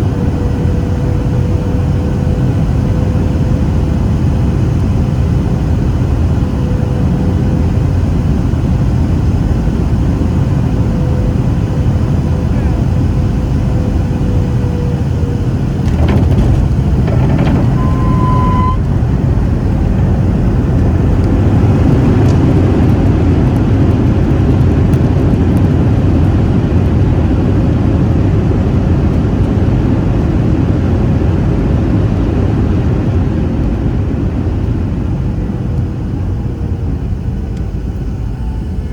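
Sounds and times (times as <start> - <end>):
airplane cabin engine rumble: 0.0 - 38.9
short beep: 17.1 - 18.9.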